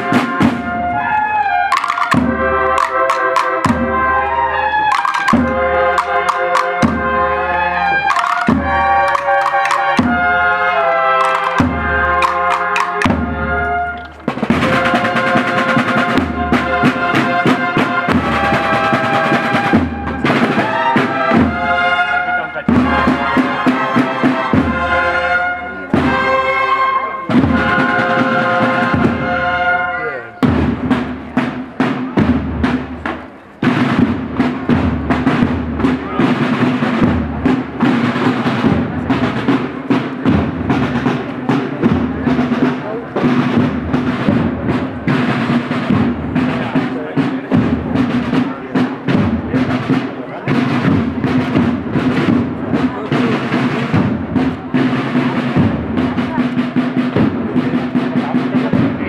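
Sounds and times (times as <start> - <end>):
trumpets holding sustained notes: 0.0 - 30.5
brass band playing a march: 0.0 - 59.0
steady drum beats: 0.0 - 59.0.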